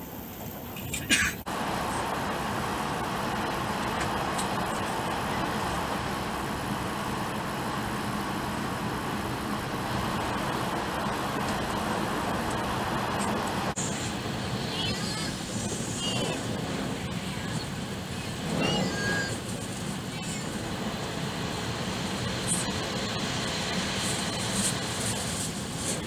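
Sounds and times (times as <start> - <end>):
high speed train rumble inside cabin: 0.0 - 26.0.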